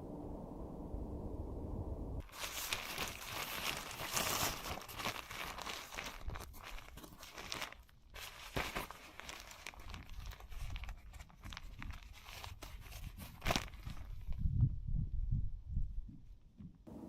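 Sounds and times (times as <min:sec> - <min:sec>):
low steady rumble: 0:00.0 - 0:03.4
plastic or paper crinkling: 0:02.2 - 0:14.4.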